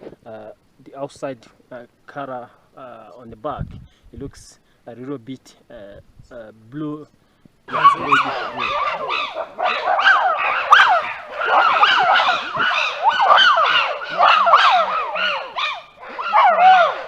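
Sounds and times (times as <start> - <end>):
chimpanzees calling: 7.7 - 17.0.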